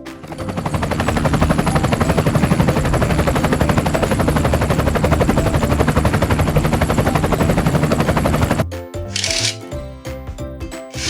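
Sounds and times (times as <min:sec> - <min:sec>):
helicopter rotor chopping: 0:00.1 - 0:09.6.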